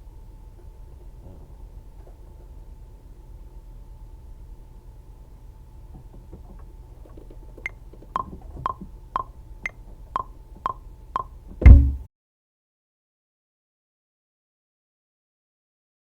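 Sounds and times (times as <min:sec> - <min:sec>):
wood block clicks: 0:07.2 - 0:11.4
deep bass drum hit: 0:11.6 - 0:12.1.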